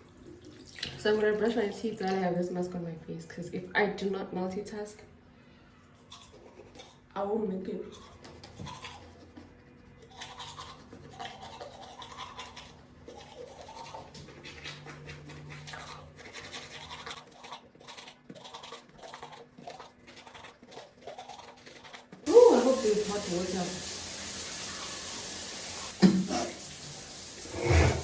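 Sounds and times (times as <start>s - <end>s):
toothbrush scrubbing teeth: 5.8s - 28.0s.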